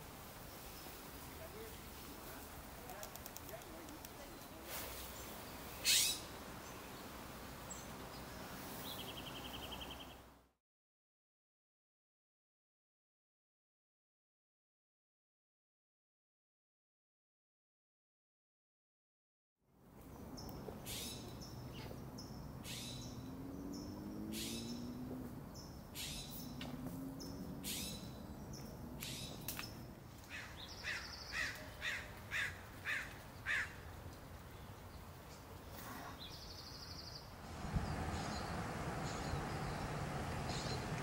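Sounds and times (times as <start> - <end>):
birds making harsh calls: 5.8 - 6.3.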